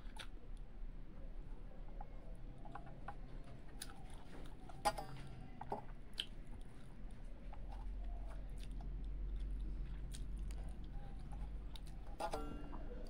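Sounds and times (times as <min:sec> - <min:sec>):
person chewing food: 0:00.0 - 0:00.4, 0:03.7 - 0:13.0.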